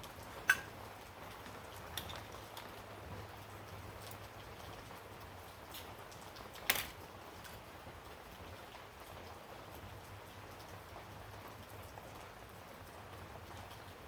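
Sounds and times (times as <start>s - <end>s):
small parts tapping and ticking: 1.4s - 2.8s, 3.9s - 4.3s.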